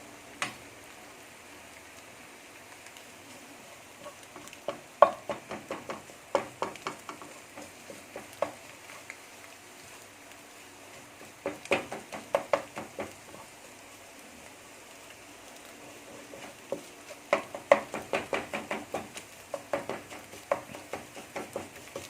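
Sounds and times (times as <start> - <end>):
faint frying sizzle: 0.0 - 22.0
spatula scraping frying pan: 4.0 - 9.1, 16.0 - 22.0.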